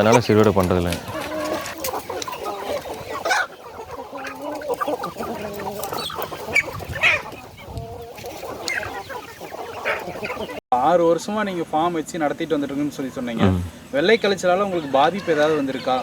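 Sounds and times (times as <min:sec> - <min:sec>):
chickens clucking: 0:00.0 - 0:10.6, 0:11.3 - 0:16.0.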